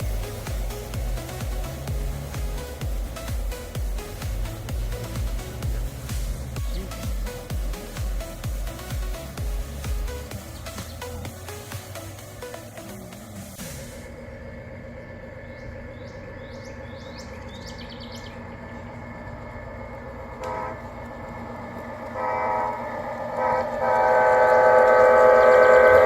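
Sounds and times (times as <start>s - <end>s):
model train rumble: 0.0s - 26.0s
model train horn: 20.4s - 21.1s, 22.0s - 26.0s.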